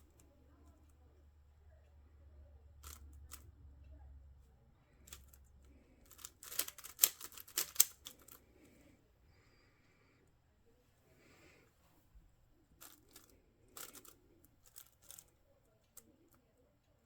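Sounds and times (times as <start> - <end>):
puzzle cube clicking turns: 2.8 - 3.4, 5.1 - 8.4, 12.8 - 15.3.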